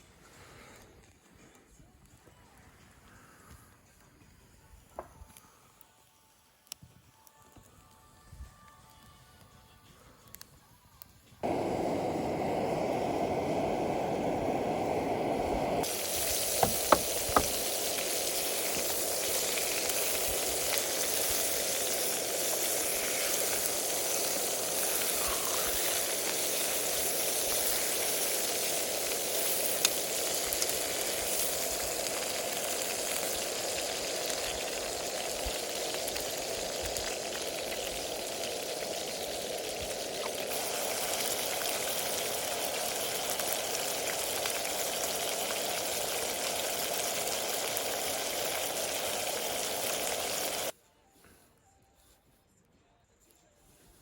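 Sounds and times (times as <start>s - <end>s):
food frying sizzle: 11.4s - 50.8s
sharp clicks or pops: 16.3s - 17.7s.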